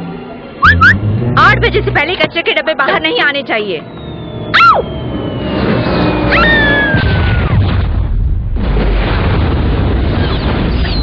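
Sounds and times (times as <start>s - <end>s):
low rumbling noise: 0.0s - 2.7s
cartoon cat screeching: 6.3s - 7.6s.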